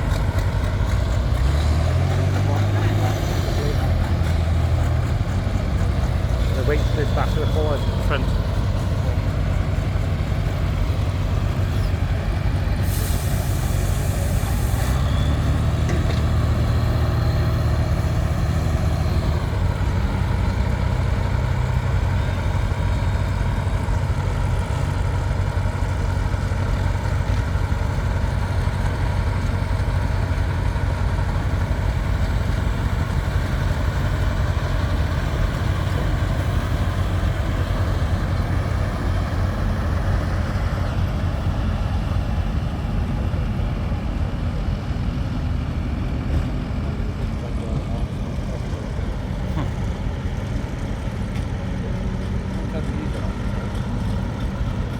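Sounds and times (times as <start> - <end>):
tractor engine running loud: 0.0 - 54.9
sharp hiss of air: 12.8 - 14.9.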